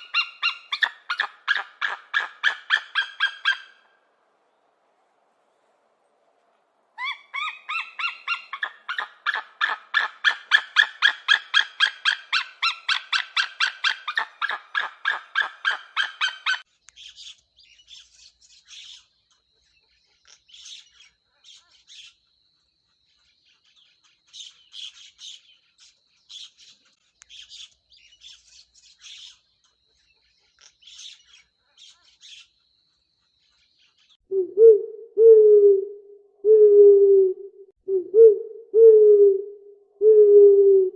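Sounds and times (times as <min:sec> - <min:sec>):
faint bird chirps: 0:00.0 - 0:06.2, 0:07.0 - 0:35.5
bird calling rapid notes: 0:07.0 - 0:16.6.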